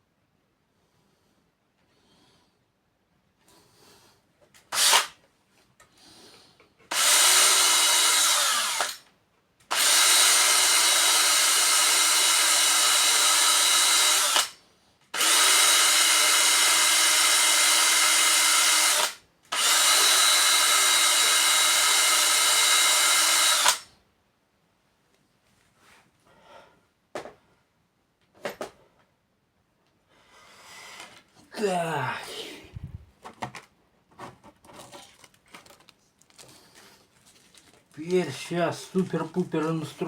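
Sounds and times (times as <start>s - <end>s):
electric drill running: 4.7s - 5.2s, 6.9s - 9.0s, 9.7s - 14.6s, 15.2s - 23.9s.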